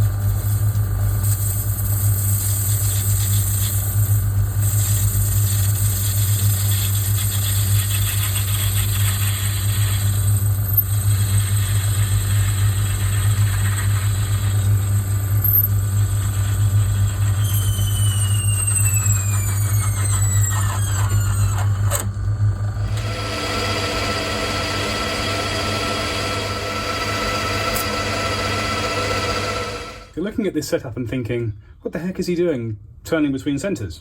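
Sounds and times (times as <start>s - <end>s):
high whine: 13.0s - 30.4s
metal lathe running: 22.8s - 30.1s.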